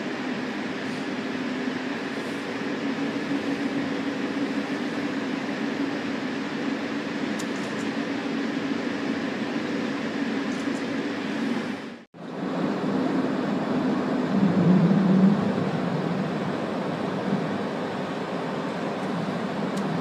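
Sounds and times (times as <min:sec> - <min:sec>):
low electric hum: 0:00.0 - 0:20.0
train rumble: 0:00.0 - 0:20.0.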